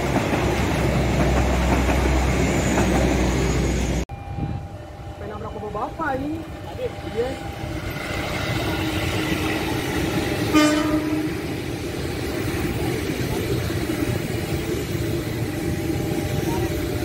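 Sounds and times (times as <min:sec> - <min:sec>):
train wheels rumbling on rail: 0:00.0 - 0:17.0
train horn toot: 0:10.5 - 0:11.5.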